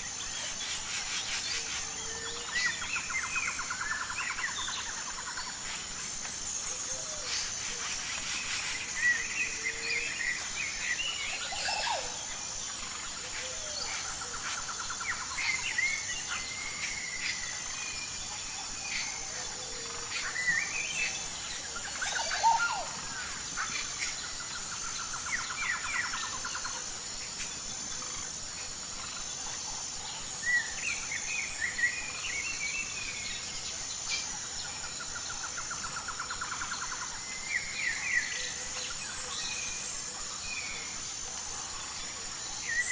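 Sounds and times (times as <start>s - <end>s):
high-pitched insect drone: 0.0s - 42.9s
birds chirping and calling: 21.9s - 24.2s.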